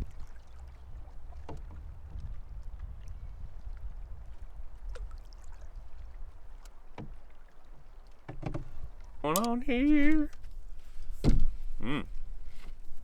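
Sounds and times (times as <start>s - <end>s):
wind on microphone: 0.0s - 6.5s
paddle splashes: 0.0s - 13.0s
knocks against canoe hull: 0.9s - 2.5s, 6.9s - 7.4s, 8.2s - 9.5s, 11.1s - 11.8s.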